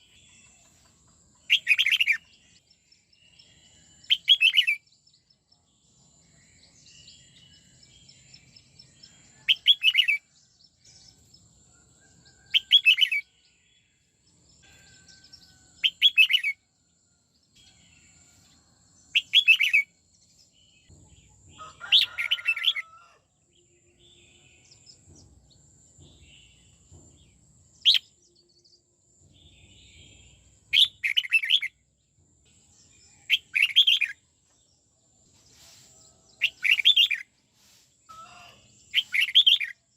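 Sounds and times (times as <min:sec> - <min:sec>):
bird singing warbled phrases: 0:01.4 - 0:05.5, 0:19.1 - 0:19.9, 0:29.5 - 0:31.8, 0:33.0 - 0:34.2, 0:38.1 - 0:39.8.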